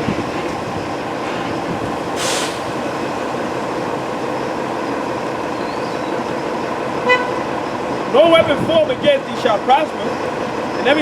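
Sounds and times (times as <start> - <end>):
vehicle traffic rumble: 0.0 - 11.0
short hiss: 2.2 - 2.8.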